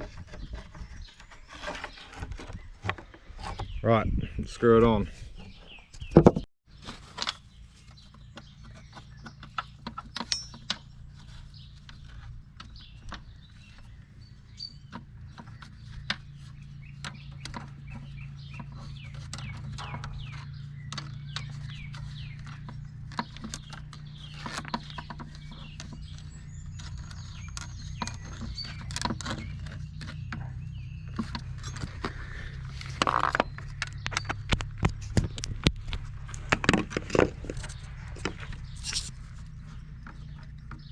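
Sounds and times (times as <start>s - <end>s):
birds clucking and chirping: 7.6s - 40.9s
clicks and knocks on metal: 8.2s - 13.9s, 14.9s - 32.2s
low hum: 10.3s - 40.9s.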